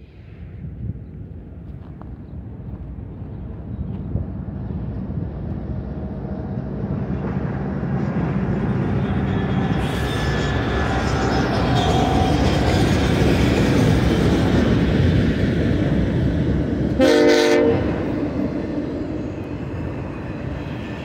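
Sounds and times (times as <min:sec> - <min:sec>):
diesel locomotive engine rumble: 0:00.0 - 0:21.0
wheels hissing and rattling on rail: 0:04.0 - 0:17.0, 0:17.8 - 0:21.0.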